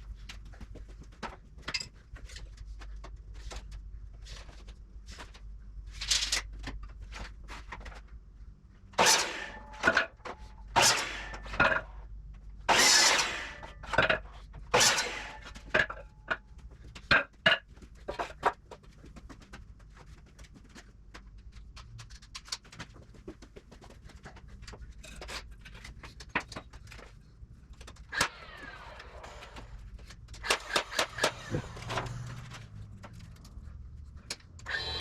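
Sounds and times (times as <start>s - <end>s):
hammer driving nails into wood: 30.4s - 31.8s.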